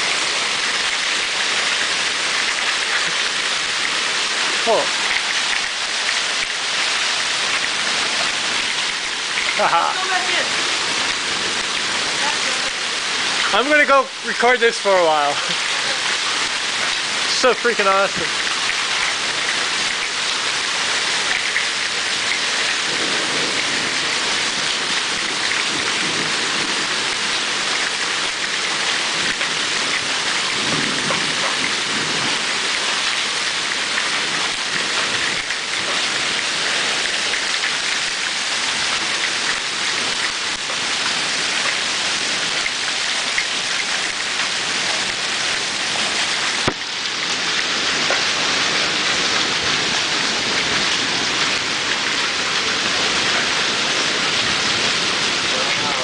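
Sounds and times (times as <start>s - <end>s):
heavy rain pouring: 0.0s - 56.0s
thunder rumbling: 29.1s - 32.9s.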